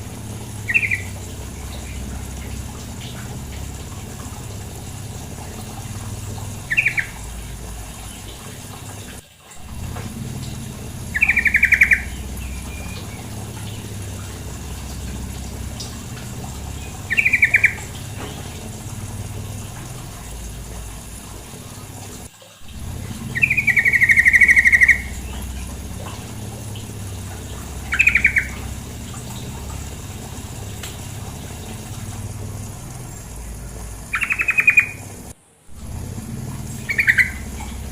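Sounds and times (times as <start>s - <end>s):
bird trilled chattering calls: 0.0s - 8.3s, 9.6s - 20.3s, 22.7s - 35.2s, 36.2s - 37.9s
running water: 0.0s - 37.9s.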